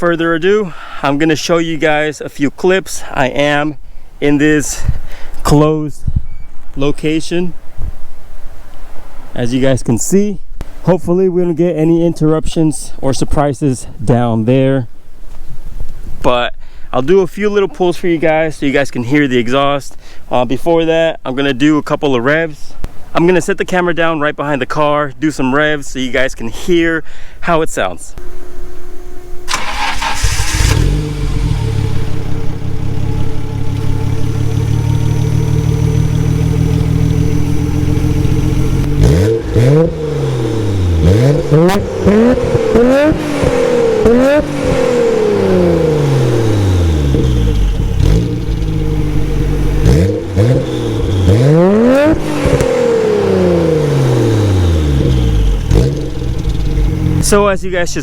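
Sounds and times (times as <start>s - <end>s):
car engine idling and revving: 29.2s - 57.4s.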